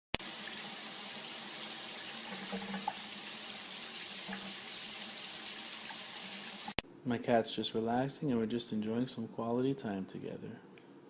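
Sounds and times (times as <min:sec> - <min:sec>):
running water rushing: 0:00.2 - 0:06.8.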